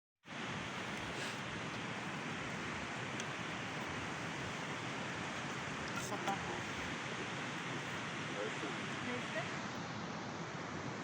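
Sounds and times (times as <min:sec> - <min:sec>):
steady rushing hiss: 0:00.3 - 0:11.0
faint voices: 0:05.2 - 0:09.7.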